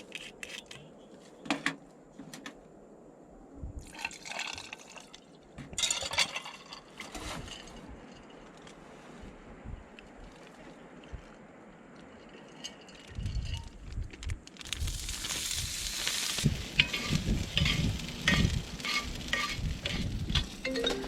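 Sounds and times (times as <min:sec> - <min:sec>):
food sizzling in skillet: 0:14.8 - 0:21.0
utensils clinking on pan: 0:16.7 - 0:21.0.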